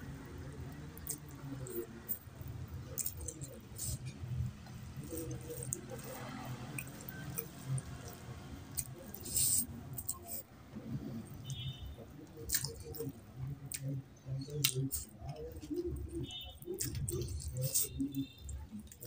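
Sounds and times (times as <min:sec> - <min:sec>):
wet chewing mouth clicks: 0:02.9 - 0:10.4, 0:12.2 - 0:19.0.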